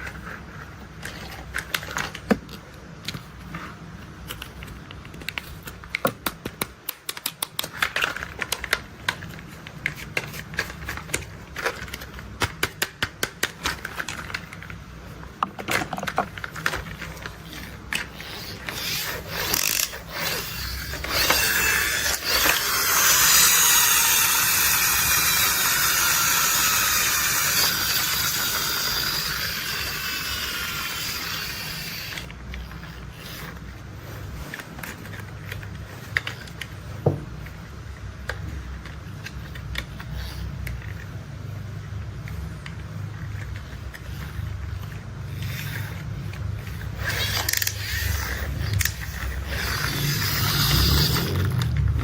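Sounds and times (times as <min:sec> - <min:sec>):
plastic toy parts clicking: 0:01.0 - 0:03.4, 0:04.2 - 0:41.2, 0:41.9 - 0:52.0
loud whirring grind: 0:17.4 - 0:34.2, 0:43.4 - 0:52.0.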